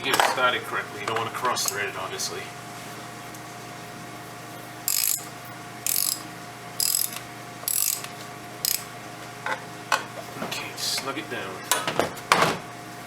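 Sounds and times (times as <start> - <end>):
ratchet wrench clicking: 4.9 - 8.9.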